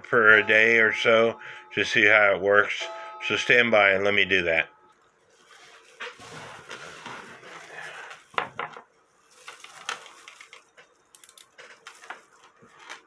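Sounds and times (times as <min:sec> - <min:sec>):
metal chains clinking: 0:11.2 - 0:13.0.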